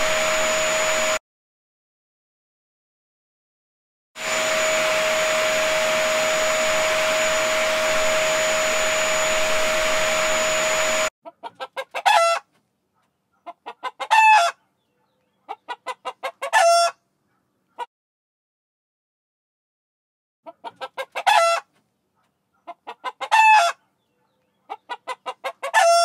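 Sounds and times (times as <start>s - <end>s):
motor hum with high whine: 0.0s - 1.2s, 4.2s - 11.1s
rooster crowing: 25.7s - 26.0s.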